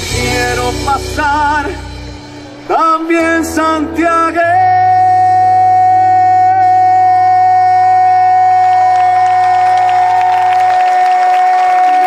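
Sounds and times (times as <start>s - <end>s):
man singing folk song: 0.0s - 11.1s.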